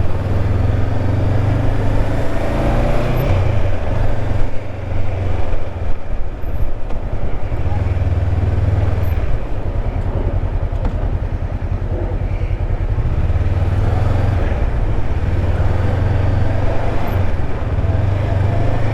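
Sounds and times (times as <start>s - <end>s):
motorcycle engine rumbling: 0.0s - 18.9s.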